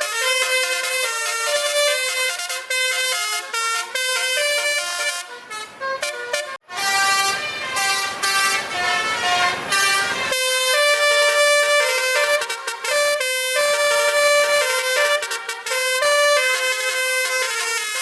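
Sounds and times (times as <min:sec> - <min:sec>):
musical air horns playing melody: 0:00.0 - 0:18.0
vehicle noise: 0:00.0 - 0:18.0.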